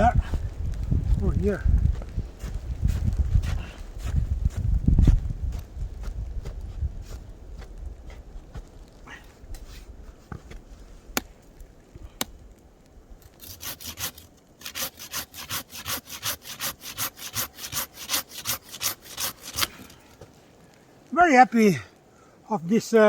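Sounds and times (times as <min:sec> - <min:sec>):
hand saw cutting wood: 0:13.4 - 0:20.0.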